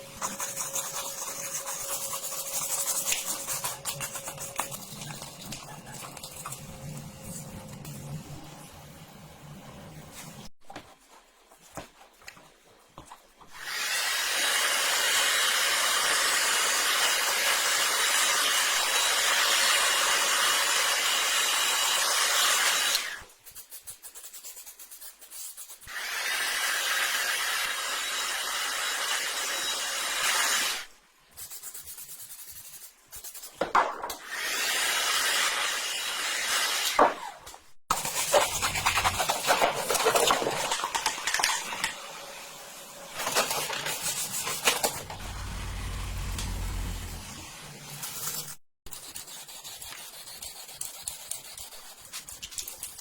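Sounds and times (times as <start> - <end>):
scraping and handling sounds: 10.1 - 13.6.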